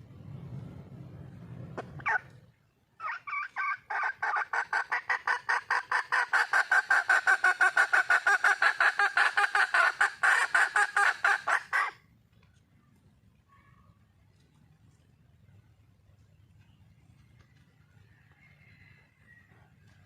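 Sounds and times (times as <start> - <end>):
hen clucking rapidly: 1.8 - 2.4, 3.0 - 12.0.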